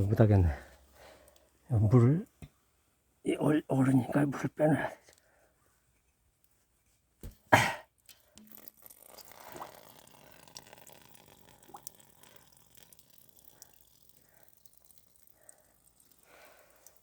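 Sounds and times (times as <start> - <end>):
water trickling and dripping: 8.0 - 17.0.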